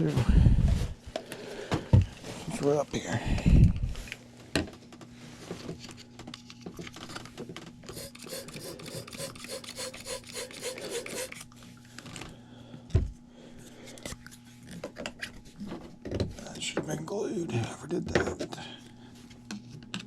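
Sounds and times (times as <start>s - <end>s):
low electrical hum: 0.0s - 20.0s
plastic rasping and rubbing: 7.9s - 11.4s.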